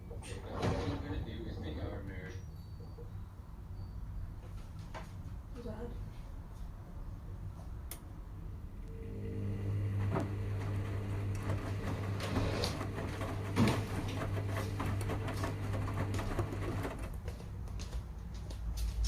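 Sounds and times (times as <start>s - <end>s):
washing machine motor humming: 8.6s - 17.4s.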